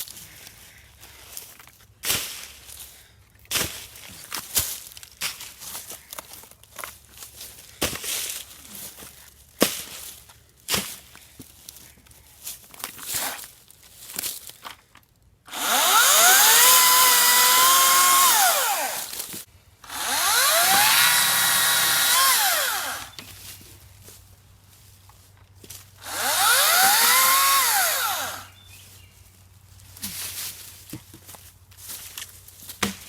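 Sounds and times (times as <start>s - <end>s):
electric chainsaw motor whining: 15.5s - 23.2s, 26.0s - 28.6s.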